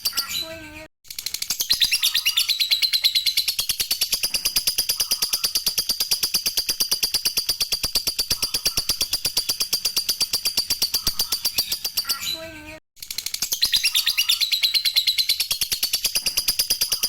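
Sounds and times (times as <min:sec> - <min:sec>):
lovebird chattering: 0:01.7 - 0:12.2.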